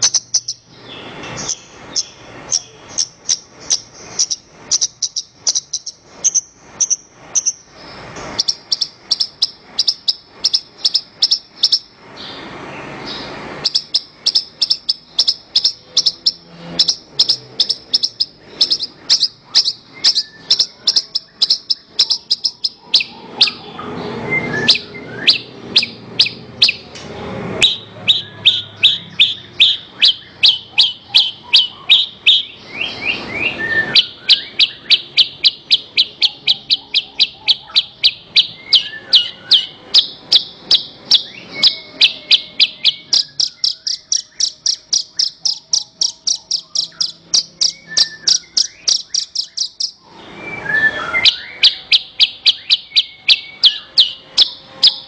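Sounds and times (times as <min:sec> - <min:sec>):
bird chirping: 0:00.0 - 0:55.0
rough low bird warbling: 0:13.2 - 0:27.0, 0:27.6 - 0:50.1.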